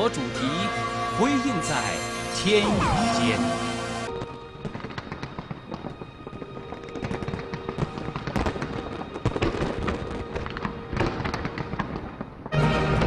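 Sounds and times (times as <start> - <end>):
music playing: 0.0 - 13.0
fireworks pops and crackles: 4.1 - 13.0.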